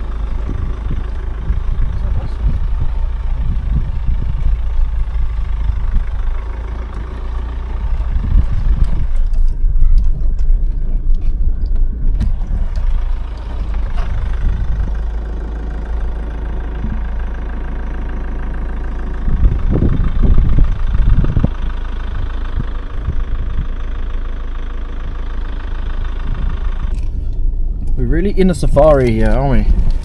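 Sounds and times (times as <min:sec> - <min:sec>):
car engine hum: 0:00.0 - 0:30.0
road rumble: 0:00.0 - 0:30.0
heavy low thumps: 0:19.3 - 0:21.6.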